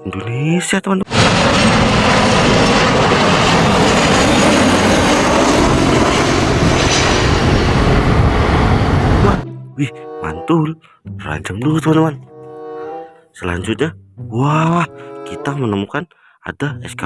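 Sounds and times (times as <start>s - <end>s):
jet airliner engines roaring: 1.1s - 9.4s.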